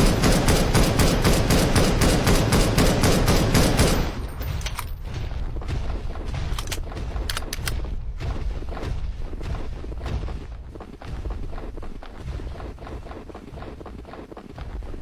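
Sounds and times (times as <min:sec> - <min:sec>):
sharp clicks: 0:06.5 - 0:07.9.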